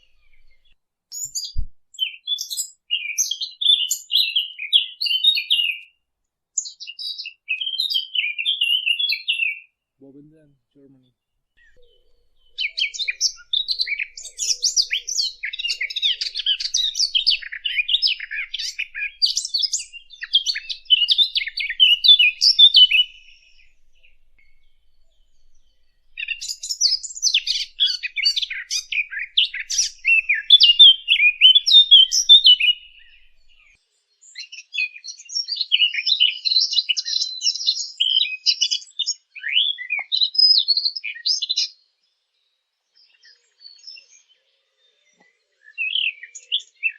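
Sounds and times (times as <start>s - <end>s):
songbird twittering: 0.0s - 5.9s, 6.6s - 9.7s, 11.6s - 38.4s.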